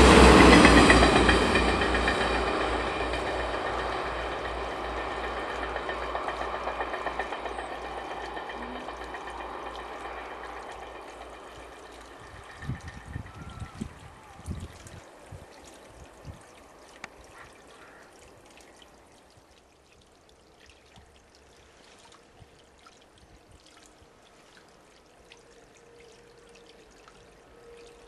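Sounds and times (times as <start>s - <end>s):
train wheel thuds: 0.0s - 13.4s
electric locomotive hum: 0.0s - 18.0s, 24.0s - 28.0s.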